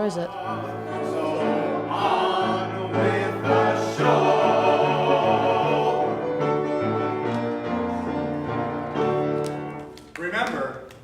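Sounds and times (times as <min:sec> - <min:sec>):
choir singing: 0:00.0 - 0:08.6.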